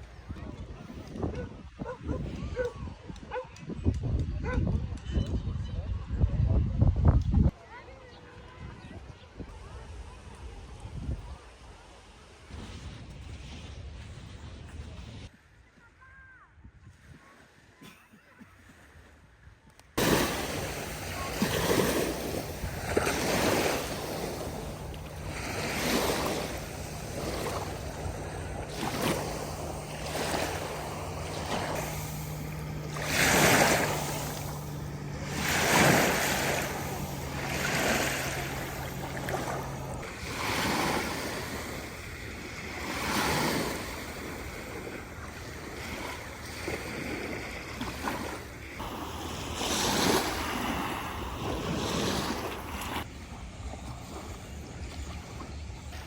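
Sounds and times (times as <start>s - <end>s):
small waves breaking on shore: 20.0s - 56.0s.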